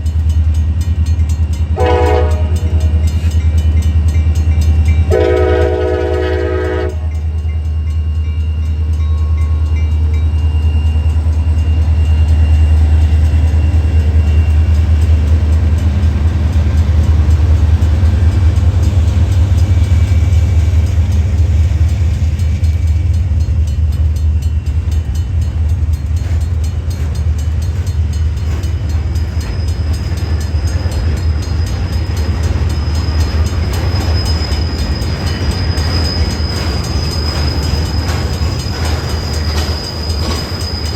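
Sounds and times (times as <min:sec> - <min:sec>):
train low rumble: 0:00.0 - 0:40.9
train horn: 0:01.8 - 0:03.3, 0:05.0 - 0:07.4
high wheel squeal: 0:29.0 - 0:40.9.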